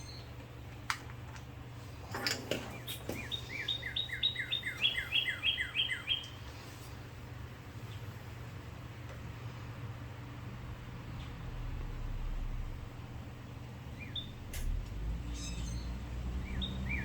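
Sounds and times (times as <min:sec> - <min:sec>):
bird chirping: 0:00.0 - 0:00.3, 0:02.6 - 0:06.5, 0:13.9 - 0:17.0
steady low hum: 0:00.0 - 0:17.0.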